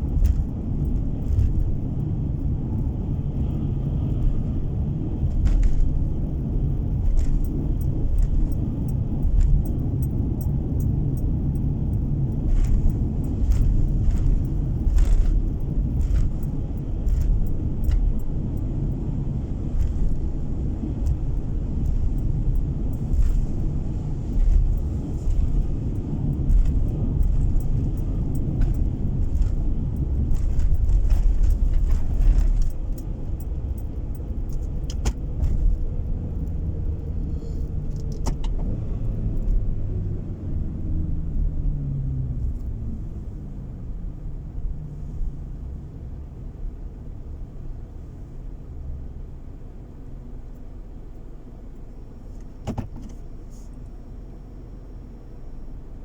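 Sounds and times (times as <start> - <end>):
light clicks and rattles: 0.0 - 40.2
car road and engine rumble: 0.0 - 56.0.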